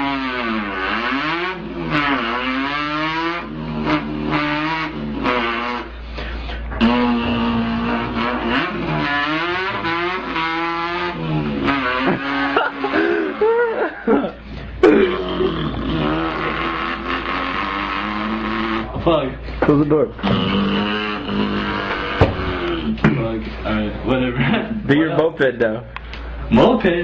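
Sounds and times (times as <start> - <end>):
man imitating car engine: 0.0 - 19.3, 20.1 - 23.4.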